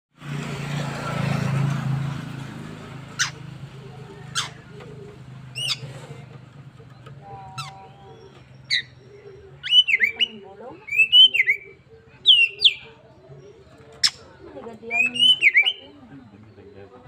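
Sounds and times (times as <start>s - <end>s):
bird singing whistled phrases: 9.6s - 12.9s, 14.9s - 15.9s.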